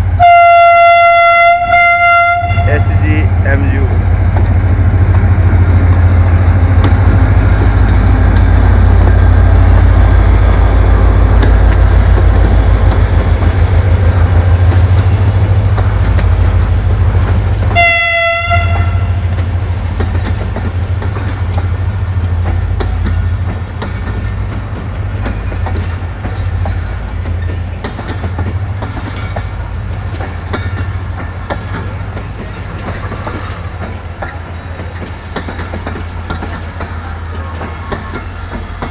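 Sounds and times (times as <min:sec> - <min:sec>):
train rumbling past: 0:00.0 - 0:38.9
train horn toot: 0:00.1 - 0:03.0, 0:17.7 - 0:19.4
wheels clattering over rails: 0:00.8 - 0:38.9.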